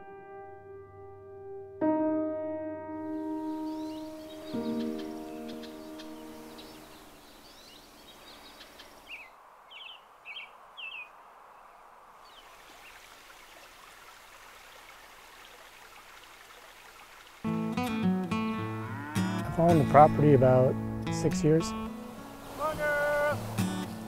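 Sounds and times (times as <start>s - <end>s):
guitar music: 0.0s - 6.8s, 17.5s - 24.0s
soft music: 0.0s - 7.2s, 17.5s - 24.0s
songbirds chirping: 2.9s - 24.0s
faint outdoor hiss: 3.0s - 24.0s
short downward-slurred bird calls: 3.2s - 13.0s.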